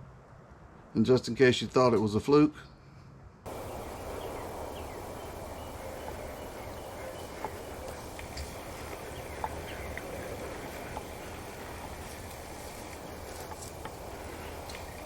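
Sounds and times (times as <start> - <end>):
outdoor background hiss: 0.0 - 15.0
turkey clucks: 3.5 - 15.0.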